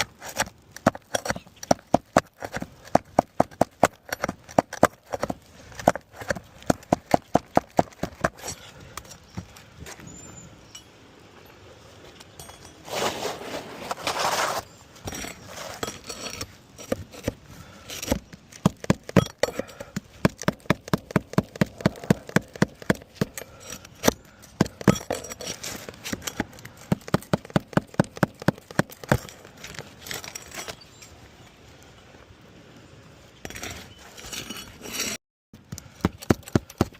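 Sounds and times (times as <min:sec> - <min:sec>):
scraping rustle: 0:11.9 - 0:18.6, 0:23.3 - 0:27.0, 0:29.0 - 0:31.3, 0:33.4 - 0:35.2
tool knocking on shingle: 0:18.6 - 0:19.4, 0:20.2 - 0:23.3, 0:26.9 - 0:29.2.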